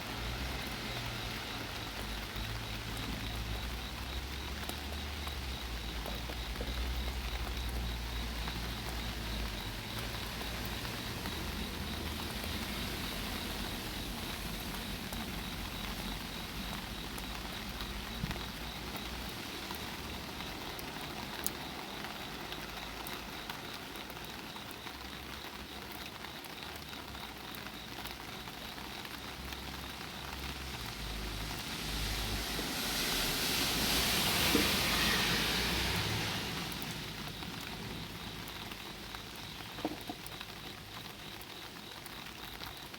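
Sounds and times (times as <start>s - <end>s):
car tyres hissing on wet road: 0.0s - 5.6s, 6.8s - 17.0s, 17.7s - 21.2s, 29.3s - 39.1s
rain pattering on an umbrella: 0.0s - 42.9s.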